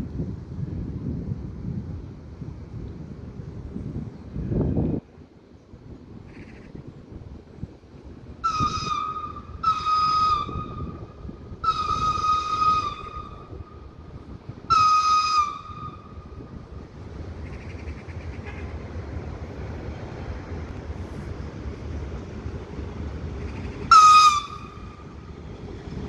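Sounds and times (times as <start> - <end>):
locomotive whistle blasts: 8.4 - 16.6, 23.9 - 25.2.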